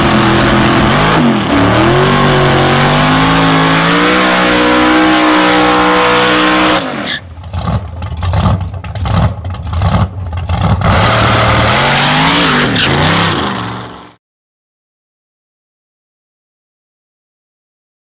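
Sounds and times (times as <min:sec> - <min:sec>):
race car engine revving: 0:00.0 - 0:14.2.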